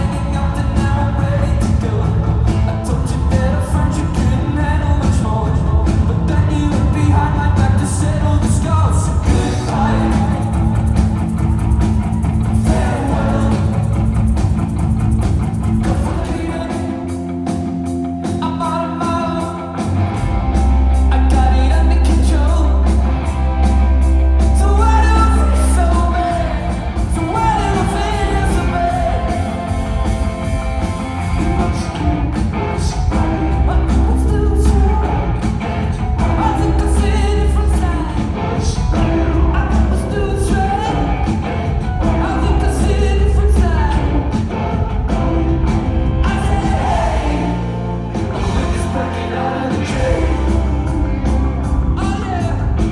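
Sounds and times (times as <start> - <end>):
lead vocal singing: 0.0 - 52.9
rock band playing live: 0.0 - 52.9.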